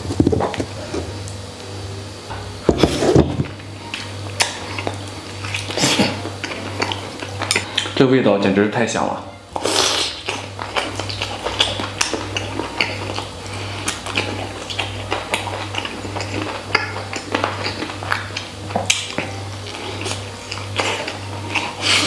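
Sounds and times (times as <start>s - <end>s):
steady low hum: 0.0s - 22.0s
wet chewing mouth sounds: 3.9s - 8.0s, 9.5s - 22.0s.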